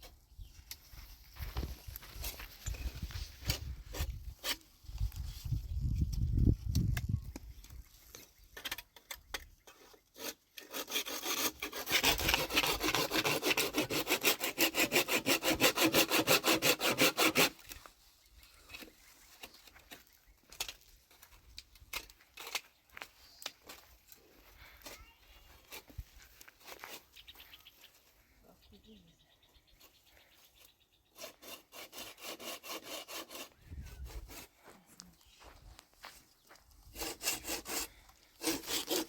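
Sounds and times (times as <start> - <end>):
hand saw cutting wood: 9.7 - 17.8, 25.7 - 27.1, 31.1 - 34.6, 36.9 - 39.0.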